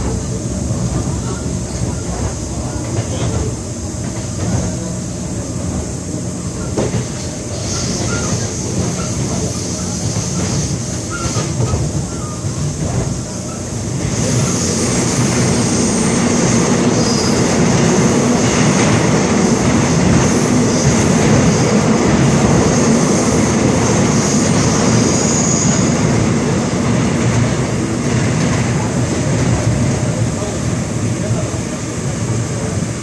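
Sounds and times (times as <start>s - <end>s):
train wheels rumbling: 0.0s - 33.0s
wheel squeal: 7.5s - 12.4s.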